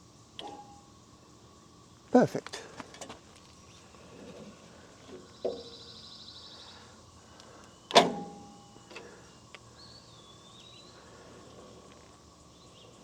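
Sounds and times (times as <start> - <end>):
faint bird chirps: 5.2 - 7.9
metal clank with ring: 8.0 - 8.7.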